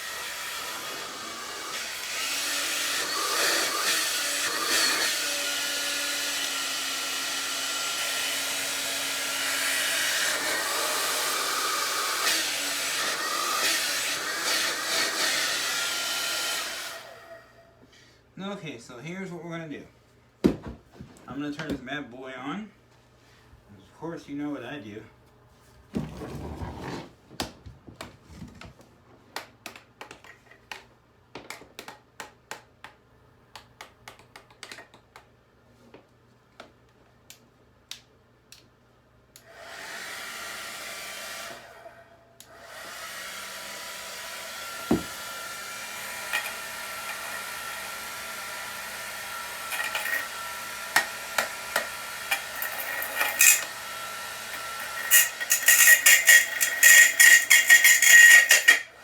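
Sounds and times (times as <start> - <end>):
hairdryer blowing: 0.0 - 17.5, 39.5 - 59.0.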